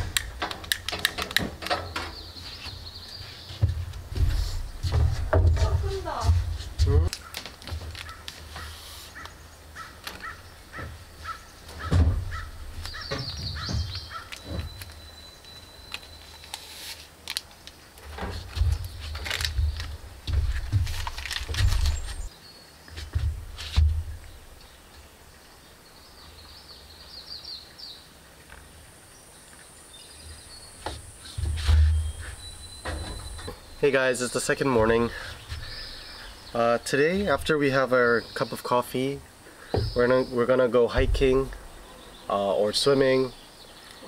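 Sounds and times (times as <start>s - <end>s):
birds calling: 0.0s - 16.6s, 18.6s - 28.0s, 29.1s - 44.0s
songbird chirping: 0.0s - 16.9s, 17.7s - 44.0s
loud low thump: 11.9s - 12.5s.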